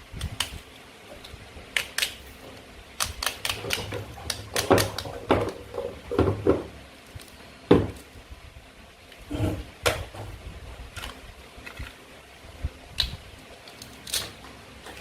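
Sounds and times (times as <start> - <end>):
toy food pieces knocking: 3.0 - 6.7.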